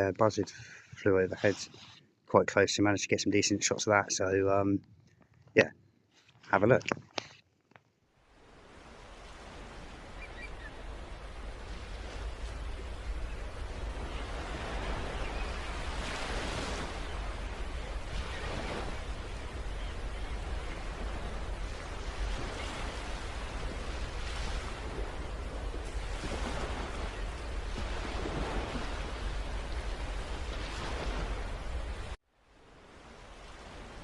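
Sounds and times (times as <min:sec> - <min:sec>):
wind on microphone: 0:09.2 - 0:32.2.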